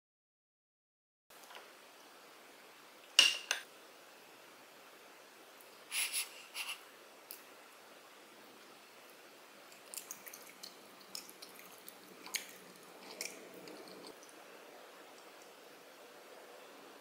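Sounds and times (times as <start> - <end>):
chewing rice cakes: 9.7 - 14.4.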